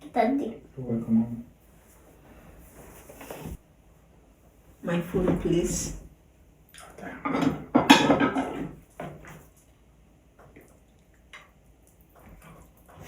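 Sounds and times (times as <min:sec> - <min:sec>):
dishes and cutlery clattering: 0:07.1 - 0:09.2.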